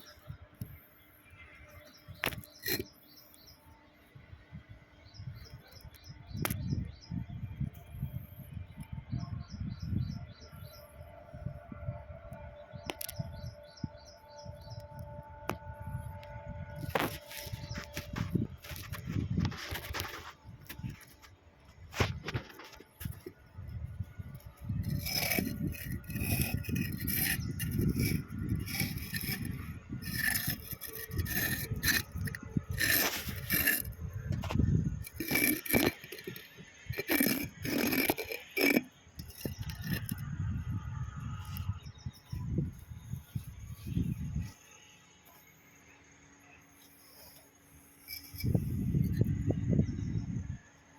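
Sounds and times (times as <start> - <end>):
metal parts scraping: 2.2 - 2.9, 16.8 - 21.3, 21.9 - 23.4, 24.3 - 40.2, 47.0 - 49.4.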